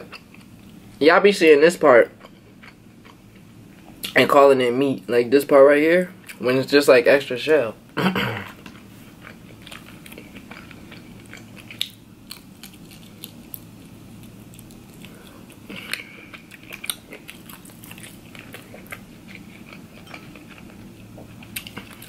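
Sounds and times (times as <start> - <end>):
close chewing with wet smacks: 8.6 - 13.6, 14.2 - 22.0.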